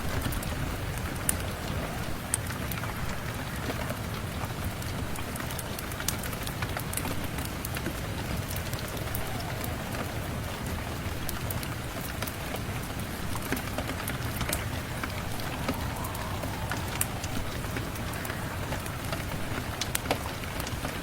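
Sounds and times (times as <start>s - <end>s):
steady rain hiss: 0.0s - 21.0s
fireplace crackling: 7.6s - 20.8s.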